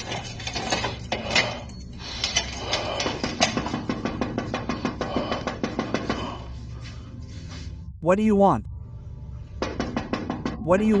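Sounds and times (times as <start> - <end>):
steady low hum: 0.0 - 11.0
sharp knocks and clatters: 2.8 - 6.4, 9.6 - 11.0.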